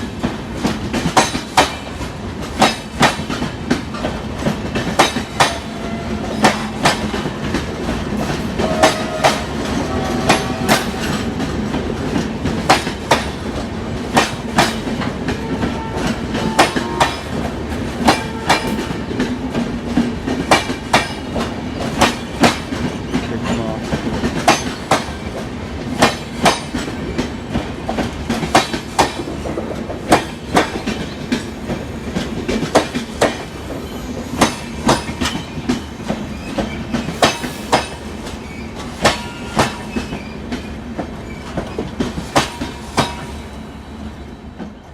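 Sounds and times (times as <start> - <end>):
train wheels clacking over rail joints: 0.0 - 43.5
train wheel squeals: 33.5 - 44.9.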